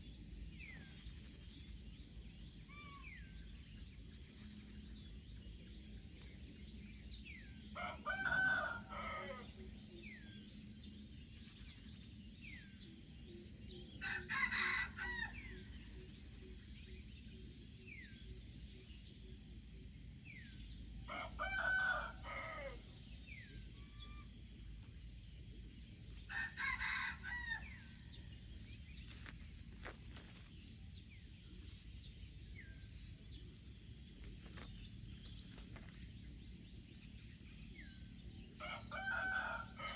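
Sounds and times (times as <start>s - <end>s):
insects droning: 0.0s - 39.9s
rooster crowing: 7.8s - 9.5s, 21.1s - 22.8s, 26.3s - 28.0s, 38.6s - 39.9s.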